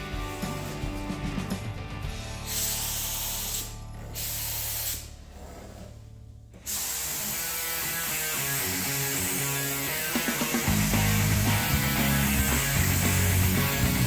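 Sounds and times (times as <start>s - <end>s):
spray gun hissing: 2.4s - 5.1s, 6.6s - 14.0s.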